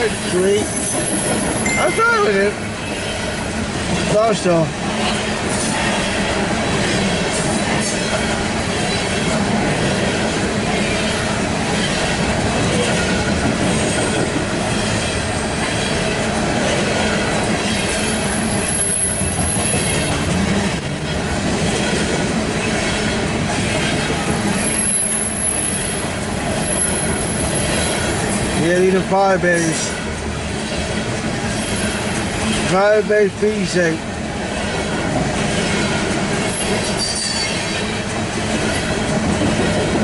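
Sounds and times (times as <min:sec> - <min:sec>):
train wheels rolling on rails: 0:00.0 - 0:40.0
high wheel squeal: 0:17.1 - 0:20.2, 0:23.8 - 0:28.6, 0:35.6 - 0:38.0.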